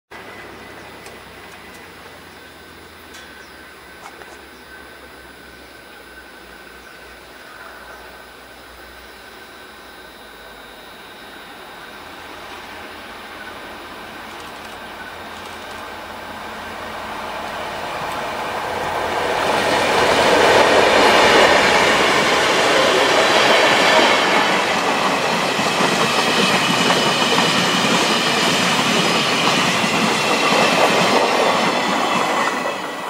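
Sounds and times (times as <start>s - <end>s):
diesel locomotive passing: 0.1s - 33.0s
freight wagons rolling on rails: 12.2s - 33.0s.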